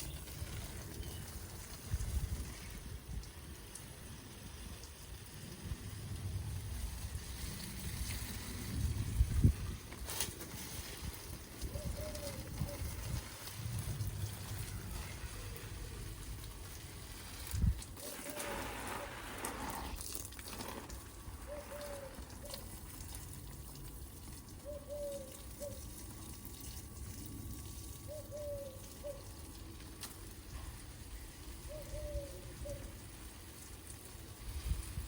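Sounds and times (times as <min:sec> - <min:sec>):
outdoor background noise: 0:00.0 - 0:35.0
rushing water-like noise: 0:10.9 - 0:30.0
bird hooting: 0:11.6 - 0:13.0, 0:21.4 - 0:22.7, 0:24.6 - 0:25.8, 0:28.1 - 0:29.3, 0:31.6 - 0:32.9.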